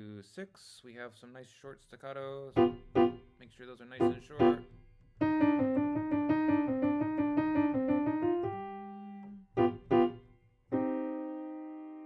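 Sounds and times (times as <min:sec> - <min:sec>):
piano notes: 0:02.6 - 0:03.3, 0:04.0 - 0:12.0.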